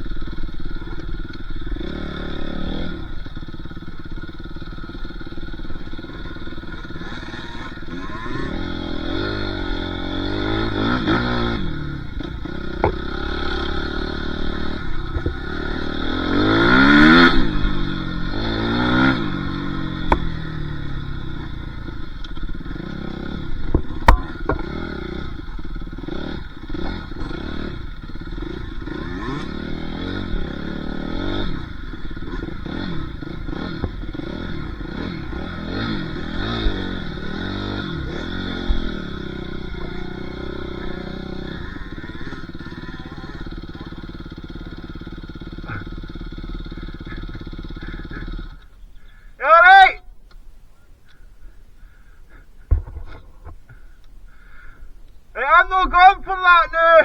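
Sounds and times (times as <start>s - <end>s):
dirt bike engine revving: 0.0s - 50.1s, 51.0s - 57.0s
sharp knock: 52.7s - 53.5s.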